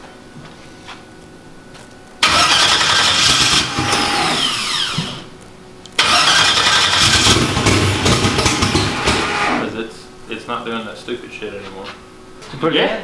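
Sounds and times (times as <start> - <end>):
race car engine cranking and starting: 2.2 - 5.4, 6.0 - 9.8.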